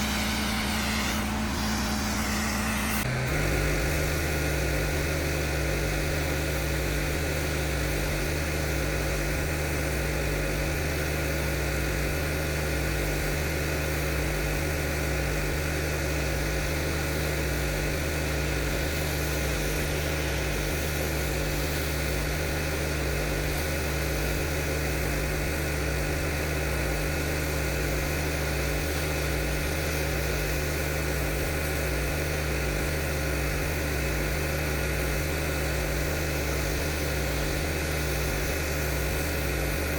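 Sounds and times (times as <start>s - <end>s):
water spray hissing: 0.0s - 8.8s
pressure washer engine running: 0.0s - 39.9s.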